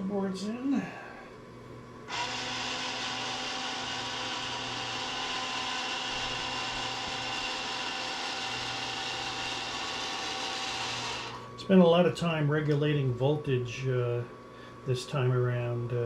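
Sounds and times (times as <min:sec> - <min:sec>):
model train motor whine: 0:02.1 - 0:11.5.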